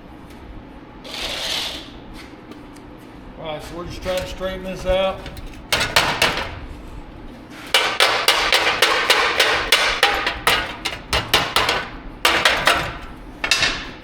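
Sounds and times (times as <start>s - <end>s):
hammer striking sheet metal: 4.0s - 6.8s, 7.7s - 14.0s.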